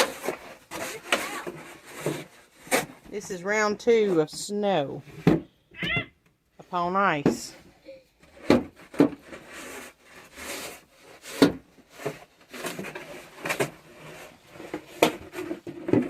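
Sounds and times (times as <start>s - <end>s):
snow shovels scraping ice: 0.0s - 4.6s, 9.2s - 16.0s.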